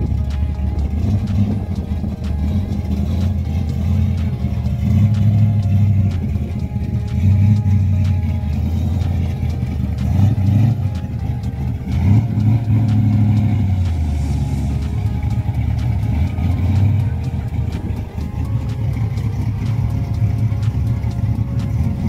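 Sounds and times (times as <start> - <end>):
car engines idling: 0.0 - 22.0.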